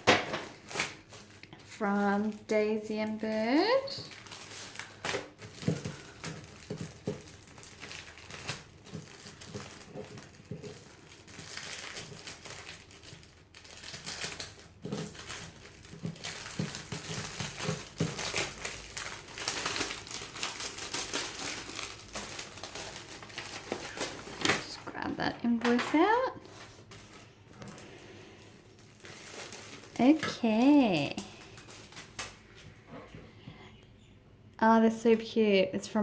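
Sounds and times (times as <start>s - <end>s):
packaging crinkling and rustling: 0.0s - 33.2s.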